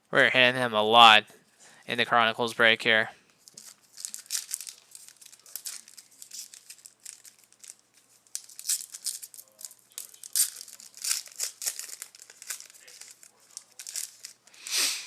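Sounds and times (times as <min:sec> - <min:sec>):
trading cards rustling: 0:03.3 - 0:14.7.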